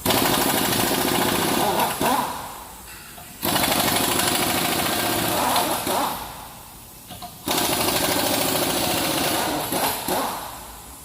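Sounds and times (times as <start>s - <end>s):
impact wrench hammering: 0.0s - 6.4s, 7.1s - 10.6s.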